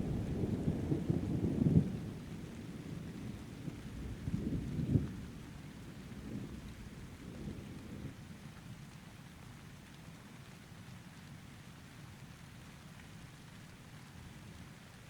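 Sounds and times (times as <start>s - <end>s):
thunder rumble: 0.0s - 5.1s
steady rain: 0.0s - 15.0s.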